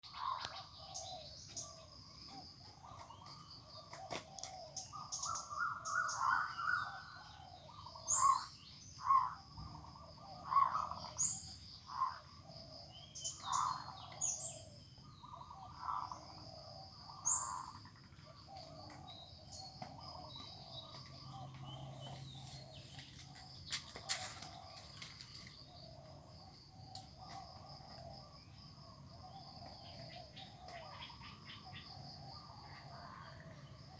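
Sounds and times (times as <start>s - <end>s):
birds squabbling calls: 0.1s - 9.3s, 13.2s - 26.0s.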